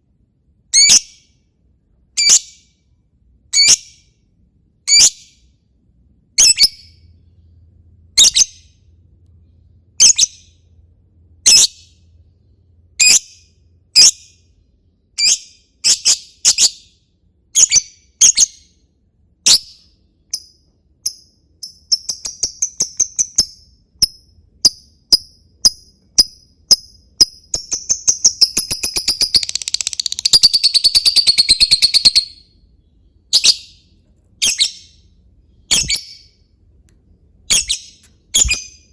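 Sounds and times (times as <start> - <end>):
bird shrill chirps and trill: 0.8 - 1.2, 2.2 - 2.6, 8.2 - 8.7, 10.0 - 10.6, 17.6 - 18.8, 19.5 - 32.6, 33.3 - 33.8, 34.4 - 35.0, 35.7 - 36.4, 37.5 - 38.9.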